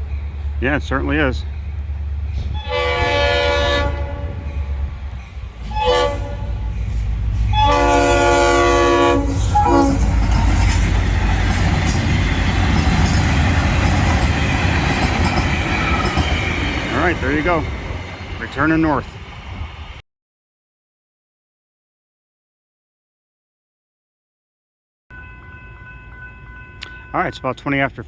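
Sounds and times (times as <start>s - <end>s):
train rumbling past: 0.0s - 20.0s
train horn blasts: 2.5s - 5.0s, 5.6s - 6.8s, 7.5s - 10.4s
wheels clacking over rail joints: 3.9s - 19.2s.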